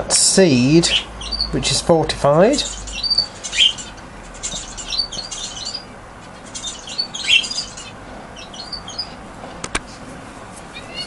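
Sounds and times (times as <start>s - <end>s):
budgerigars chirping: 0.5s - 9.2s.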